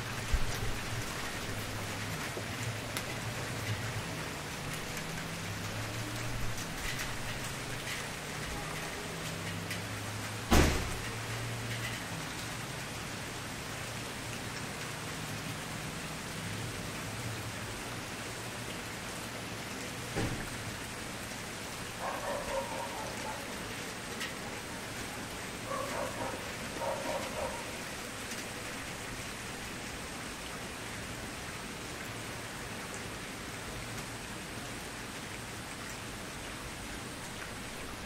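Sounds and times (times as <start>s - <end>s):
sharp fire pops: 10.5s - 11.0s.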